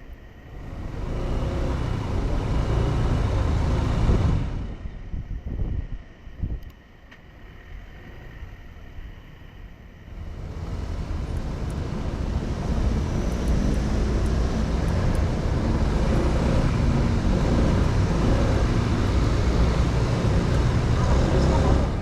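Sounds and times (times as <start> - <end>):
road noise: 0.0 - 22.0
motorcycle engine riding: 0.5 - 5.0, 10.1 - 22.0.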